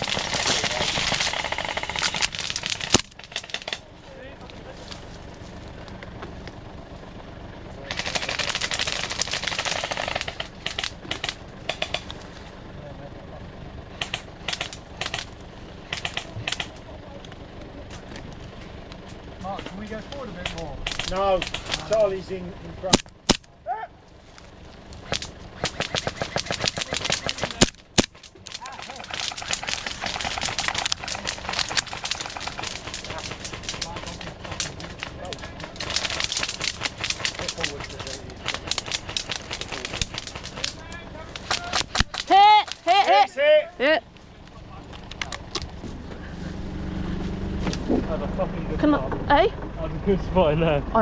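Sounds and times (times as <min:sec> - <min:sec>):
airsoft rifle full-auto burst: 0:00.0 - 0:03.8, 0:07.9 - 0:12.1, 0:14.0 - 0:16.8, 0:20.4 - 0:22.1, 0:25.0 - 0:43.1
vehicle engine rumbling: 0:00.0 - 0:51.0.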